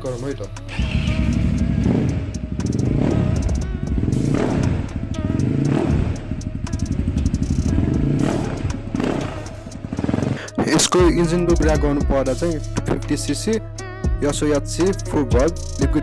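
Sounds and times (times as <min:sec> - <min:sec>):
dirt bike engine revving: 0:00.7 - 0:10.8.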